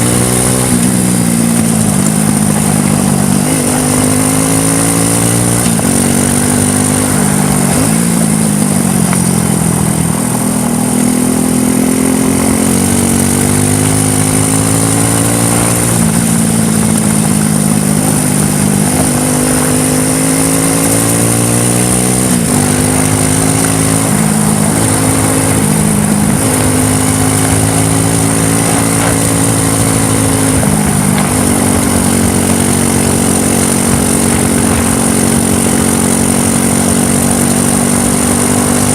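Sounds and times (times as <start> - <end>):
quad bike engine revving: 0.0 - 38.9
road and tyre noise: 0.0 - 38.9.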